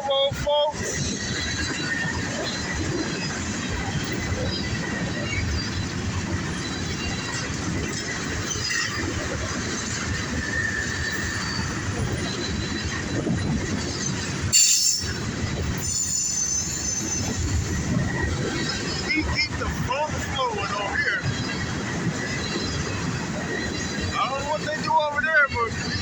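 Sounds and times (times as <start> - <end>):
freight train rolling past: 0.0 - 26.0
high wheel squeal: 1.0 - 19.6
sharp loud squeal: 10.4 - 12.9, 14.5 - 15.2, 15.8 - 17.5.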